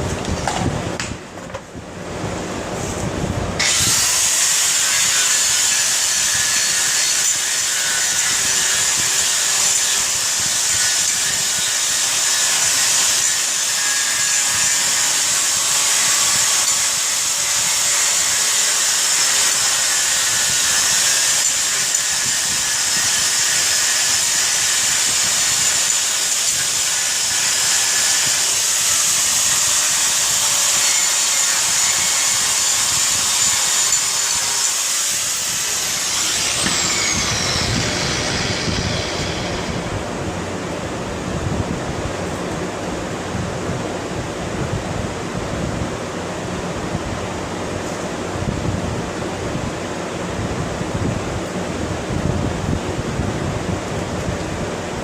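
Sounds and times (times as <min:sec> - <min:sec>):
power tool harsh hiss: 0:03.6 - 0:39.9.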